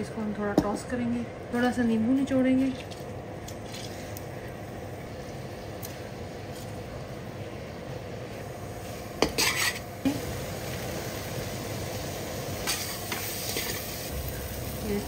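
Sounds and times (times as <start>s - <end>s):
chicken sizzling in oil: 3.6s - 15.0s
spoon scraping pot: 9.2s - 9.9s.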